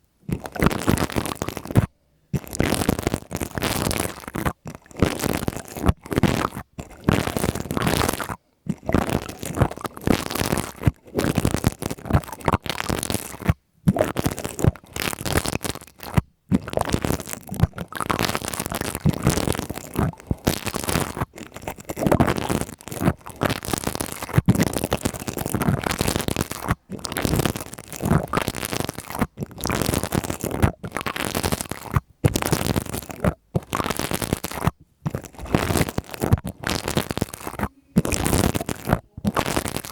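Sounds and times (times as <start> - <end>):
pipe cleaners scratching microphone: 35.1 - 39.9.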